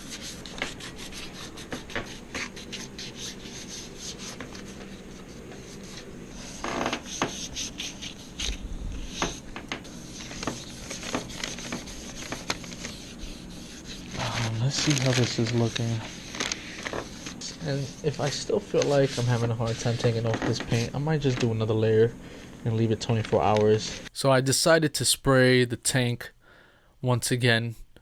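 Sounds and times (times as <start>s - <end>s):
wet sandpaper rubbing on metal: 17.4s - 20.9s.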